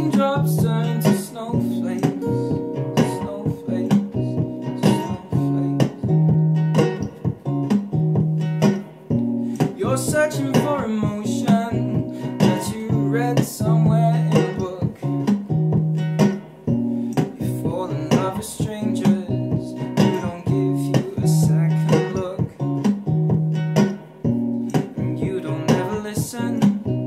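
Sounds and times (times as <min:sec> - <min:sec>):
wordless singing: 0:00.0 - 0:06.2, 0:09.5 - 0:15.3, 0:17.2 - 0:22.8, 0:24.8 - 0:26.9
acoustic guitar picked and strummed: 0:00.0 - 0:27.0.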